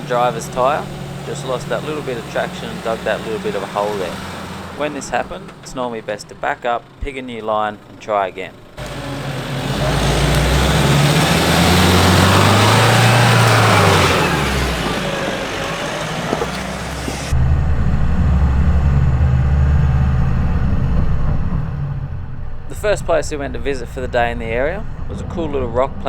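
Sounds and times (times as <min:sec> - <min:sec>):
truck engine revving: 0:00.0 - 0:26.0
tyre noise on dirt track: 0:00.0 - 0:26.0
muffled engine drone: 0:16.8 - 0:26.0.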